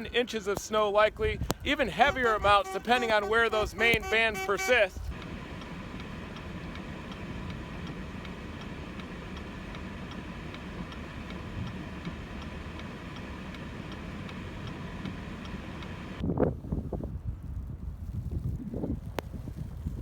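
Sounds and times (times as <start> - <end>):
low street rumble: 0.0 - 20.0
faint regular ticking: 5.1 - 16.2.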